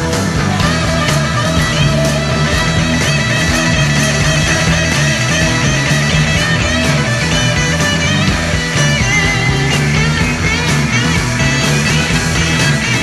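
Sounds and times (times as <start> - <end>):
bass guitar: 0.0 - 13.0
drums: 0.0 - 13.0
electric guitar lead: 0.0 - 13.0.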